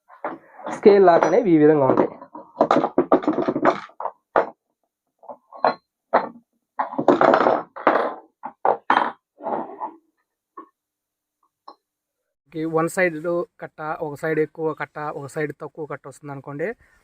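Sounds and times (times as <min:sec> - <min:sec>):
metal knocks and clunks: 0:00.1 - 0:04.6, 0:05.2 - 0:09.9.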